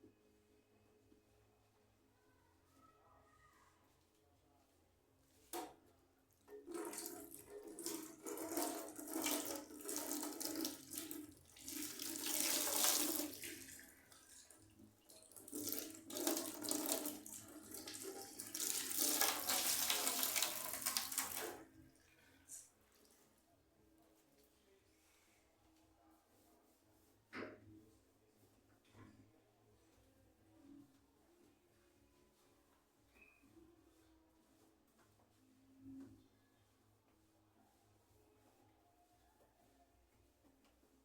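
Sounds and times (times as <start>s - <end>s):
tap running into a sink: 5.5s - 5.8s, 6.5s - 13.9s, 15.2s - 21.6s.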